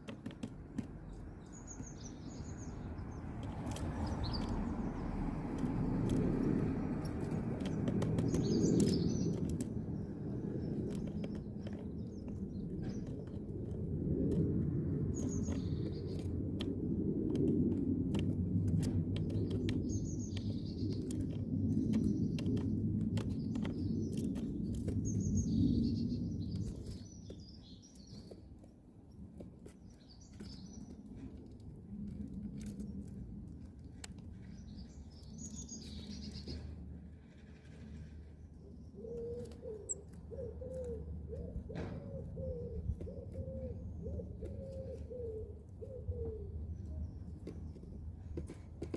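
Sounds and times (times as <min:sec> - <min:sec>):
birds chirping: 0:00.0 - 0:16.8, 0:18.2 - 0:33.2, 0:34.0 - 0:48.9
low rumble: 0:01.2 - 0:27.6
scattered clicks: 0:02.9 - 0:25.7.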